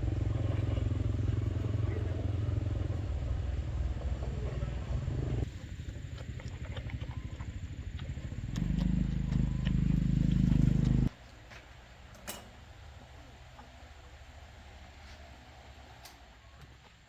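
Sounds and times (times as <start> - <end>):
machine rapid low pulsing: 6.4 - 11.1.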